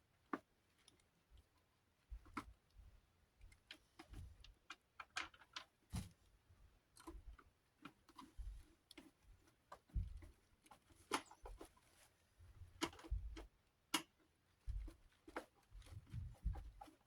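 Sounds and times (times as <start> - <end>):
small parts clicking and tapping: 3.4 - 5.8, 12.8 - 14.3.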